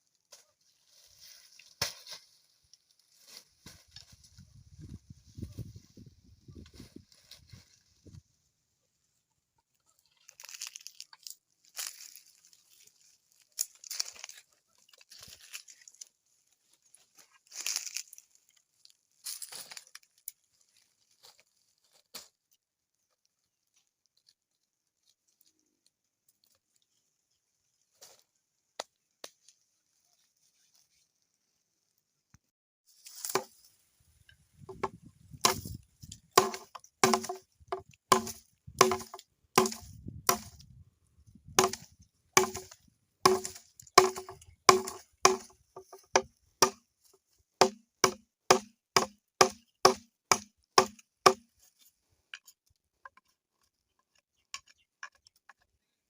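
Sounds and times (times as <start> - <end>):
blade chopping into wood: 34.7 - 35.8, 36.4 - 40.6, 41.6 - 46.8, 47.6 - 51.5.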